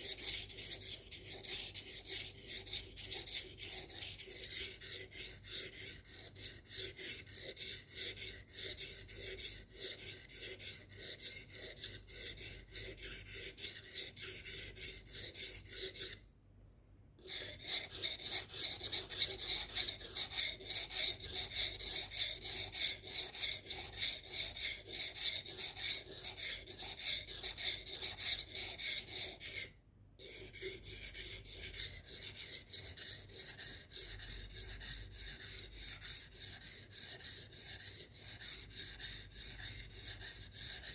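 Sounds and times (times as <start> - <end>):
knife scraping on sharpener: 0.0 - 16.2, 17.2 - 40.9.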